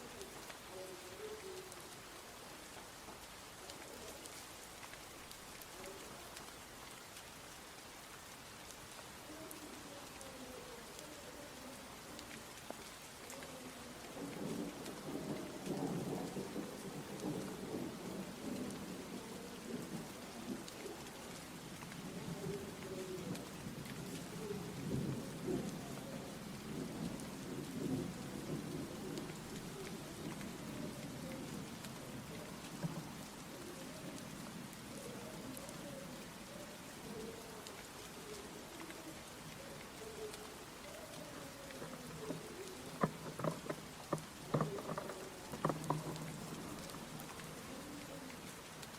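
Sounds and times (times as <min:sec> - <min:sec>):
rain drop ticks: 0:00.0 - 0:48.9
steady rain falling: 0:00.0 - 0:48.9
low rumble of thunder: 0:14.1 - 0:20.7, 0:22.0 - 0:33.5.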